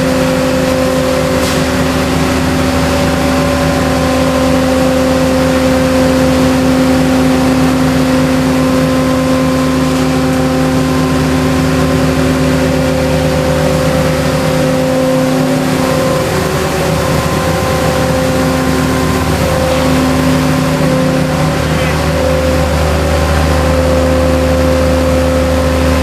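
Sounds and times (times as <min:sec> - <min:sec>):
train machinery humming: 0:00.0 - 0:26.0
rushing noise: 0:08.6 - 0:26.0.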